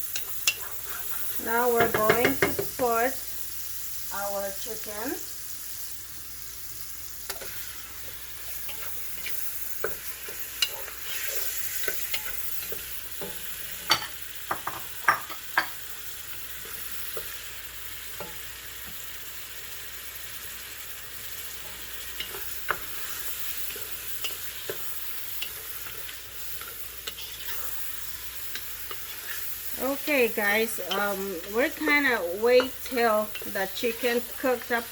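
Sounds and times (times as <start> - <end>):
chicken sizzling in hot oil: 0.0 - 34.9
utensil knocking and scraping pan: 0.5 - 2.9.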